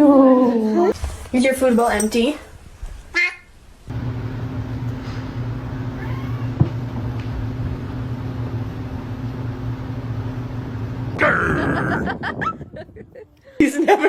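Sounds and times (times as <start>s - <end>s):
low hum: 1.0s - 13.6s
faint cat meow: 5.9s - 6.7s.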